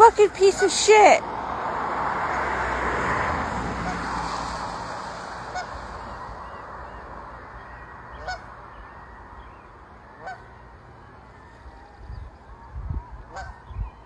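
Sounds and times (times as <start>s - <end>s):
goose honking: 0.0s - 1.2s, 3.7s - 4.4s, 5.4s - 7.0s, 8.1s - 8.5s, 10.2s - 10.5s, 13.3s - 13.6s.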